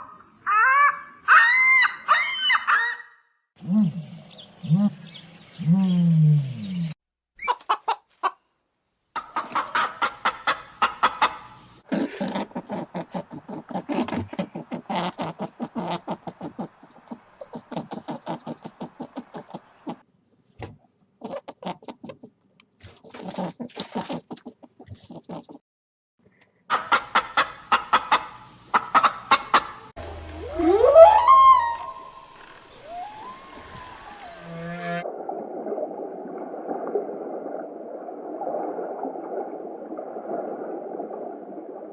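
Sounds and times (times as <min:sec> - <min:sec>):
chickens clucking: 0:09.2 - 0:20.0, 0:26.7 - 0:29.9
low animal call sliding in pitch: 0:30.0 - 0:35.1.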